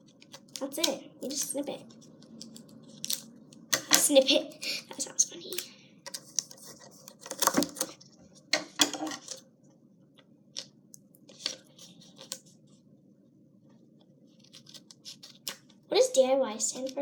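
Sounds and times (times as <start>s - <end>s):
faint steady hum: 0.0s - 17.0s
tape and paper handled: 6.1s - 8.1s, 14.4s - 15.8s.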